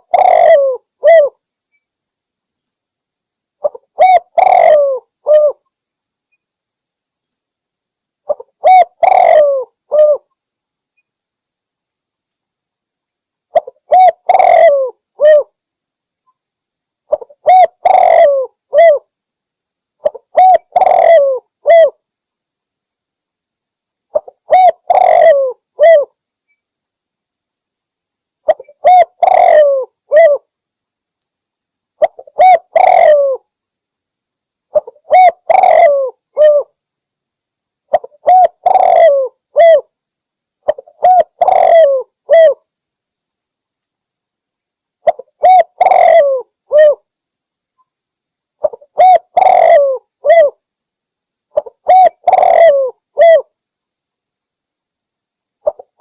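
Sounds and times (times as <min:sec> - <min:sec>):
dove cooing: 0:00.0 - 0:01.4, 0:03.6 - 0:05.6, 0:08.3 - 0:10.3, 0:13.5 - 0:15.5, 0:17.1 - 0:19.1, 0:20.0 - 0:22.0, 0:24.1 - 0:26.1, 0:28.5 - 0:30.4, 0:32.0 - 0:33.4, 0:34.7 - 0:36.7, 0:37.9 - 0:39.9, 0:40.7 - 0:42.6, 0:45.0 - 0:47.0, 0:48.6 - 0:50.6, 0:51.6 - 0:53.5, 0:55.6 - 0:56.0.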